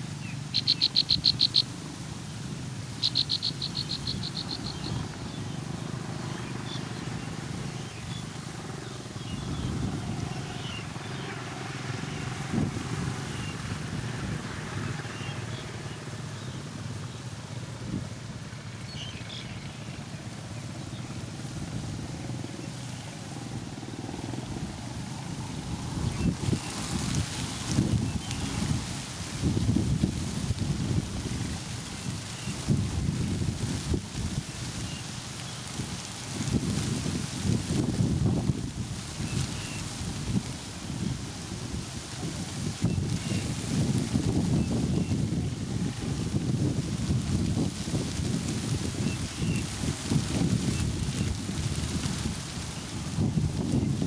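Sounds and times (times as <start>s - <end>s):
baby birds begging calls: 0.3s - 1.8s, 2.9s - 5.4s.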